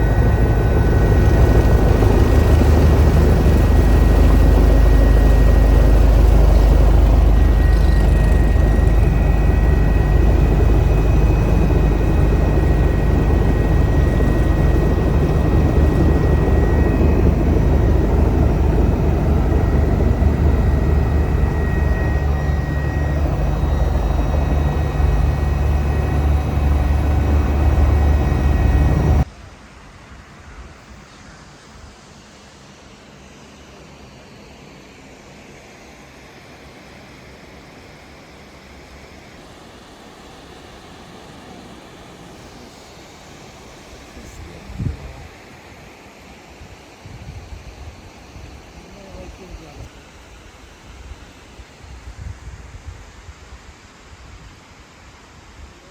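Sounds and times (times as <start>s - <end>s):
helicopter rotor and engine rumble: 0.0s - 29.3s, 37.2s - 50.3s
high turbine whine: 0.0s - 29.3s.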